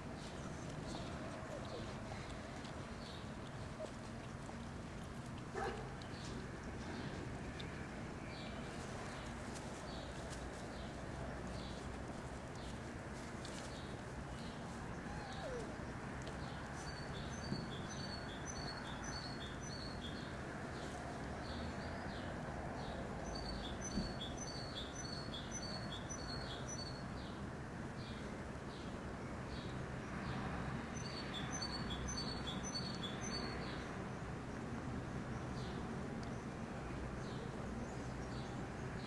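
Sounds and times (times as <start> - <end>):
songbird chirping: 12.5 - 27.4, 31.0 - 33.9.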